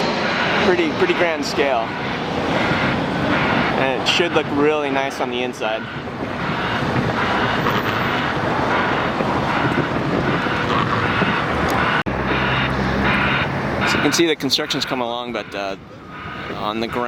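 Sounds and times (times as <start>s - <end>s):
low engine hum: 0.0s - 4.8s
vehicles running: 0.0s - 17.0s.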